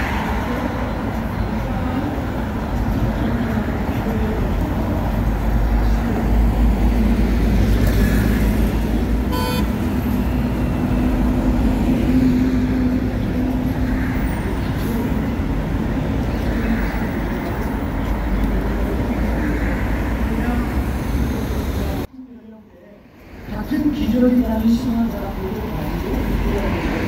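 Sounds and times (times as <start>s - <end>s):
bus engine rumble: 0.0s - 27.0s
horn toot: 9.3s - 9.8s.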